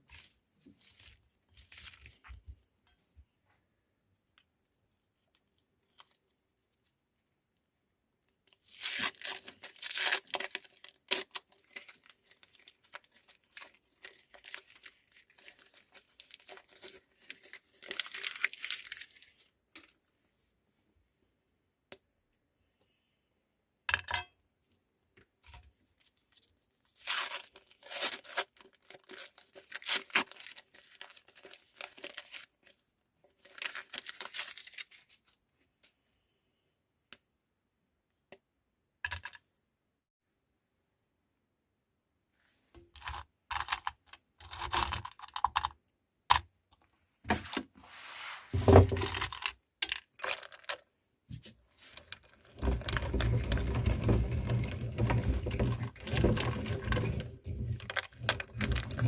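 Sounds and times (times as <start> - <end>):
meat grinder crunching foil: 8.7 - 11.8.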